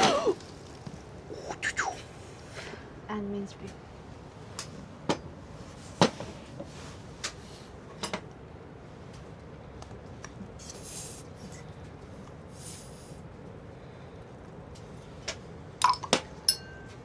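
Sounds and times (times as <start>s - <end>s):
hissing rustle: 10.6s - 11.6s, 12.5s - 13.2s.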